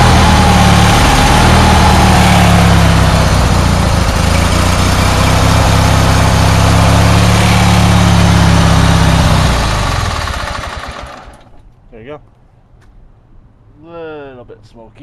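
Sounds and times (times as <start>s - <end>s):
lawn mower engine running: 0.0s - 11.6s.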